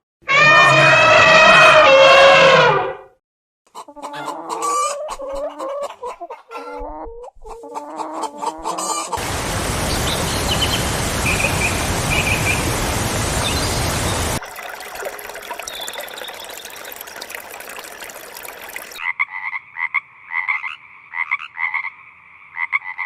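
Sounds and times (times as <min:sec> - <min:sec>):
chicken clucking: 0:03.7 - 0:09.2
steady rushing noise: 0:09.2 - 0:14.4
faint high bird chirps: 0:09.8 - 0:14.4, 0:15.6 - 0:16.9.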